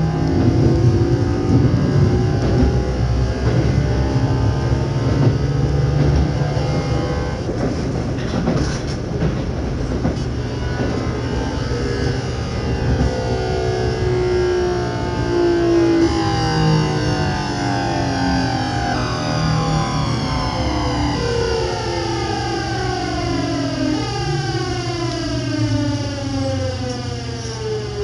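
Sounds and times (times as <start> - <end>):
inverter and motor whine: 0.0 - 28.0
train running noise: 0.0 - 28.0
clicks over rail joints: 0.2 - 11.2.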